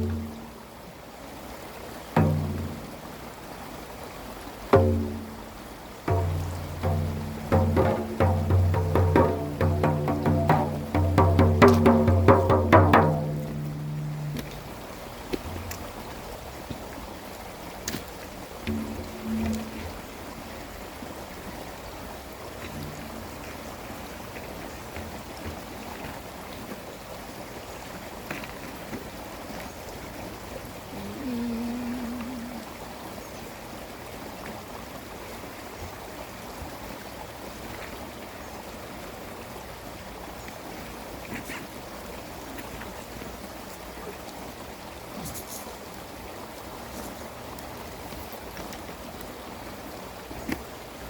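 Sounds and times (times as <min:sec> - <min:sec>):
water flowing over stones: 0:00.0 - 0:51.0
pitched tone: 0:18.7 - 0:20.0.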